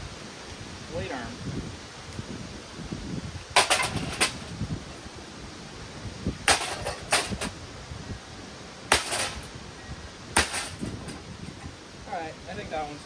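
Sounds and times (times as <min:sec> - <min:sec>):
fan blade arm clattering impacts: 0:03.5 - 0:04.6, 0:06.4 - 0:07.6, 0:08.9 - 0:09.6, 0:10.4 - 0:11.7.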